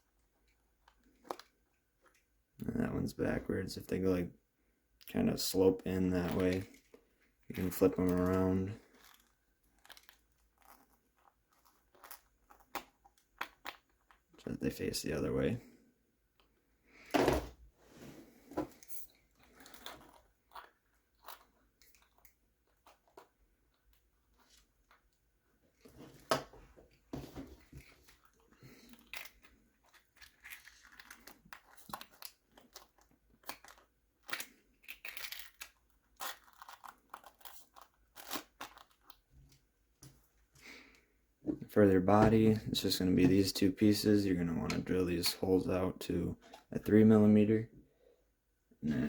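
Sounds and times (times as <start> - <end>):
small plastic clicks and creaks: 0.4 - 2.3, 8.2 - 14.5, 27.7 - 40.2.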